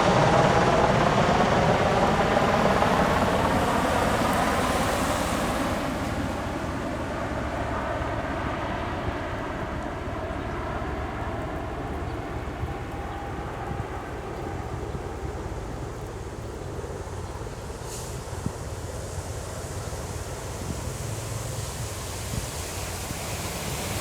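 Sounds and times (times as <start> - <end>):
tiltrotor aircraft thrumming: 0.0 - 7.4.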